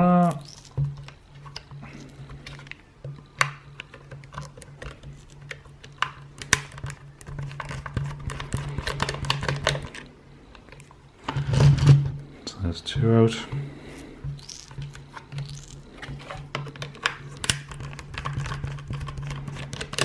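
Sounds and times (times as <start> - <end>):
steady low hum: 0.0 - 17.4
screwdriver clicking and scratching: 14.4 - 20.0.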